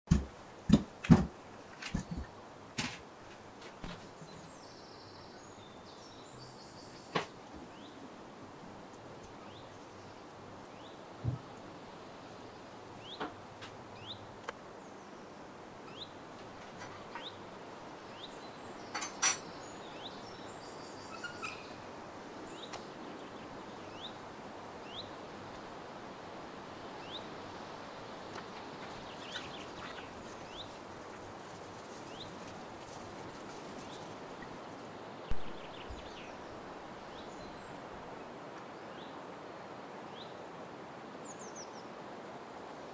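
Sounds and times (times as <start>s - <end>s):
small birds chirping: 0.1s - 8.1s, 8.8s - 25.3s, 27.0s - 39.2s
outdoor hiss: 0.1s - 42.9s
low thump: 35.3s - 36.0s.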